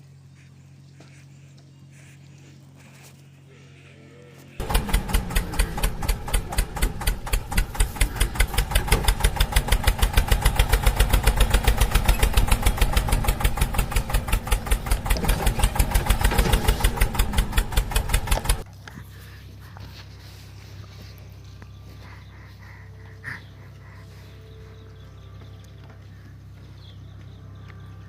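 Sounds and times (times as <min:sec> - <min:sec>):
tractor diesel engine thudding: 0:04.6 - 0:18.7.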